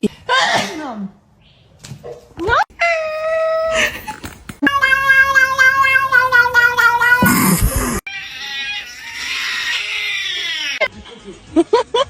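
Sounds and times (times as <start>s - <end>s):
cat yowling: 2.8s - 3.9s, 4.6s - 10.9s.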